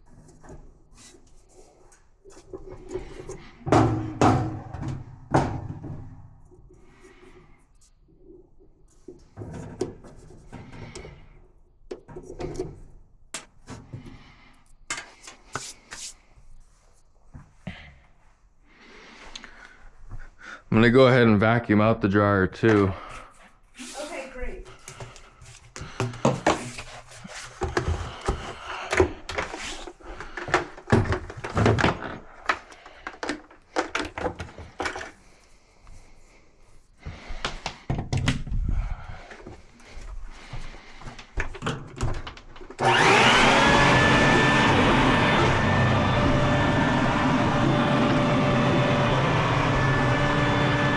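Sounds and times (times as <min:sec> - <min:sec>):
parts and tools clattering: 0:12.0 - 0:16.0, 0:24.8 - 0:35.3
hands scraping and rubbing: 0:14.6 - 0:17.1, 0:23.1 - 0:28.5.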